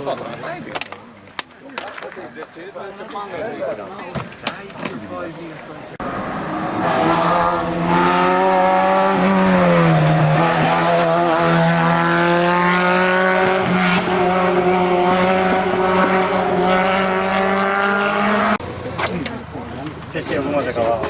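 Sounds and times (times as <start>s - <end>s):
rally car engine revving: 6.0s - 19.5s.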